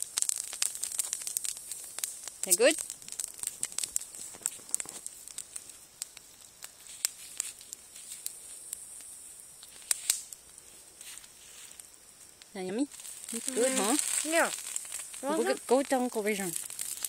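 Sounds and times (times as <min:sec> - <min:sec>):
campfire crackling and popping: 0:00.0 - 0:17.0
faint fire hiss: 0:00.0 - 0:17.0.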